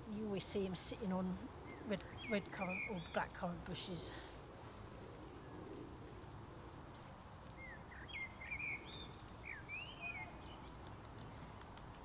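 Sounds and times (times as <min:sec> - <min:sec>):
songbird singing: 0:00.0 - 0:04.2, 0:06.9 - 0:12.0
low background noise: 0:00.0 - 0:12.0.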